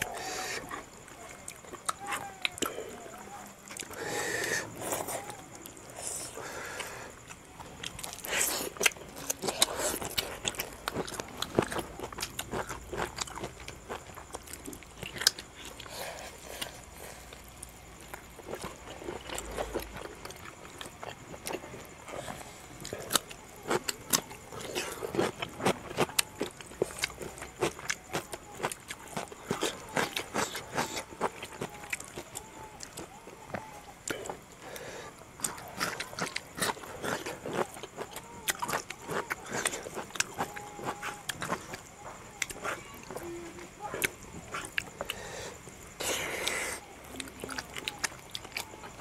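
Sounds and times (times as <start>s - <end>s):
chewing and lip smacks: 35.4s - 45.2s, 46.0s - 49.0s.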